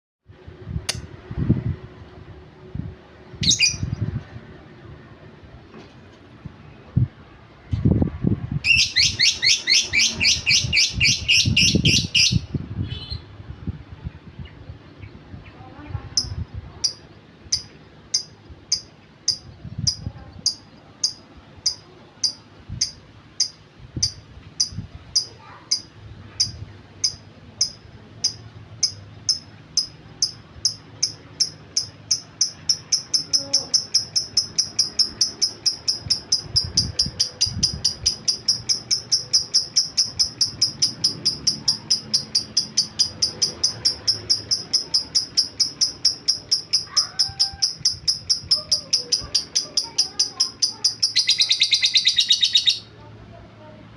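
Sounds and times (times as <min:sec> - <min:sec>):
lovebird ticking call: 0:08.7 - 0:12.5, 0:16.2 - 0:52.9.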